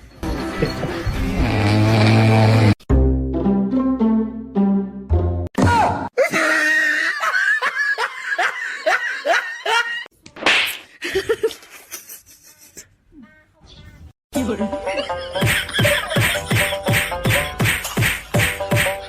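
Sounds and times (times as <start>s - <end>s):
person laughing: 0.4s - 1.2s, 6.2s - 10.1s, 11.0s - 13.3s, 14.9s - 17.6s.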